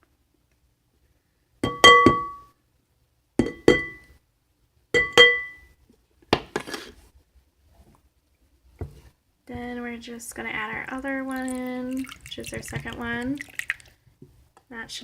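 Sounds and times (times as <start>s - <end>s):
bowl ringing with clear tone: 5.0s - 5.7s.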